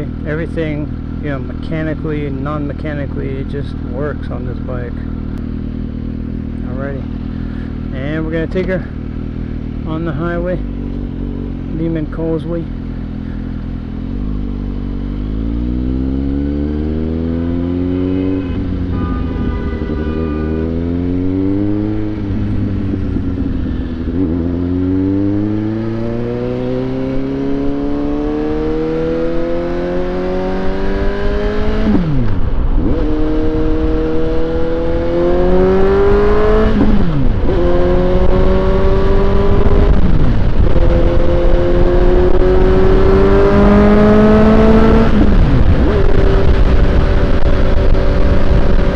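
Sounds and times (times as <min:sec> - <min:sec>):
motorcycle engine accelerating: 0:00.0 - 0:48.9
wind rush: 0:16.9 - 0:48.9.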